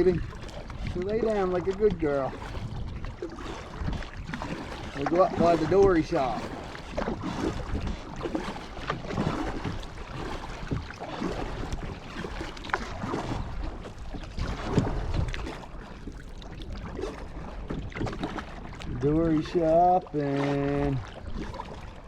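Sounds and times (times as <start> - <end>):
paddle splashing in water: 0.0 - 22.0.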